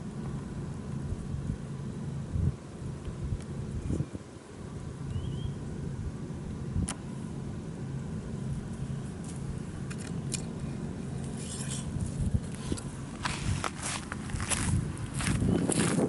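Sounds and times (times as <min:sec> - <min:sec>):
steady low hum: 0:00.0 - 0:16.0
short rustle: 0:11.2 - 0:16.0.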